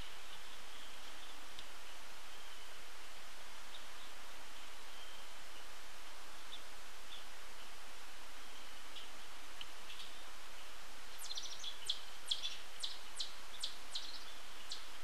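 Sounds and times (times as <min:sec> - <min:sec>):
steady background hiss: 0:00.0 - 0:15.0
faint bird calls and chips: 0:11.1 - 0:15.0.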